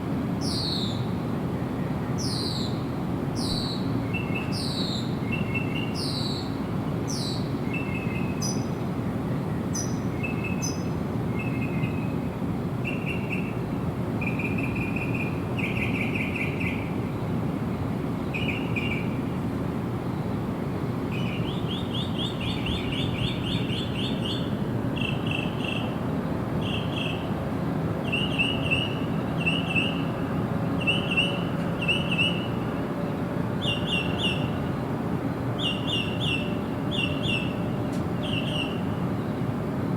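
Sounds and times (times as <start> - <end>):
songbirds trilling: 21.1 - 26.0, 26.6 - 27.3, 30.8 - 32.7, 33.6 - 34.9, 35.6 - 37.6, 38.2 - 39.0.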